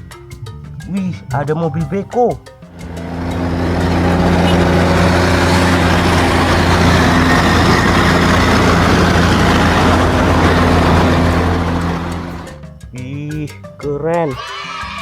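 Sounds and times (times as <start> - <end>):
diesel engine running: 2.7 - 12.7.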